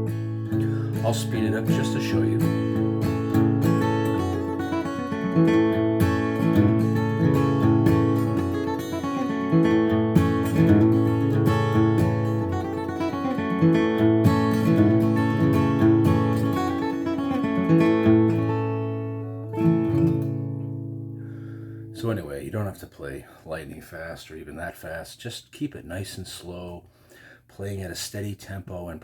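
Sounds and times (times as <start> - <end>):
flatpicked acoustic guitar: 0.0 - 22.2.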